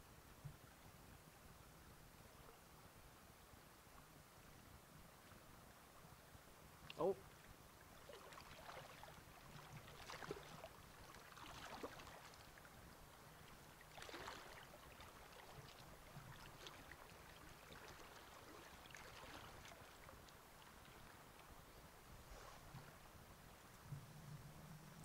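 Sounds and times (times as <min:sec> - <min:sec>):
faint flowing river water: 0:00.0 - 0:25.0
water swishes: 0:00.3 - 0:25.0.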